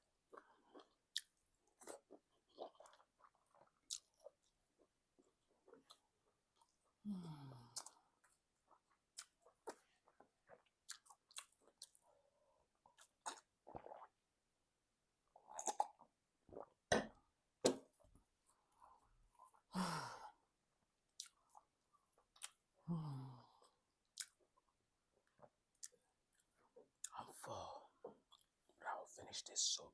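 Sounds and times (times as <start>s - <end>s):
chewing and lip smacks: 0.3s - 6.0s, 7.7s - 12.1s, 12.8s - 14.1s, 21.2s - 22.6s, 24.1s - 24.6s, 25.2s - 27.2s.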